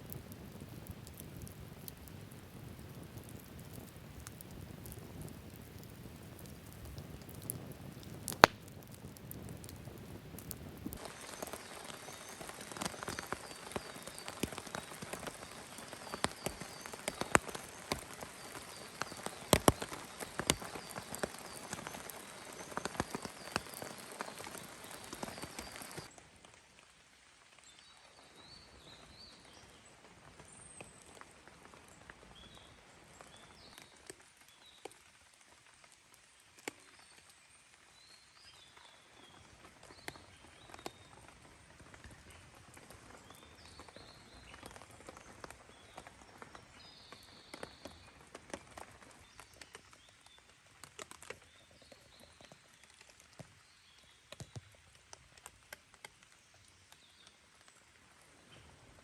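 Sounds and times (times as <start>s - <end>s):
small birds chirping: 0.0s - 26.1s
campfire crackling and popping: 0.0s - 27.5s, 29.7s - 59.0s.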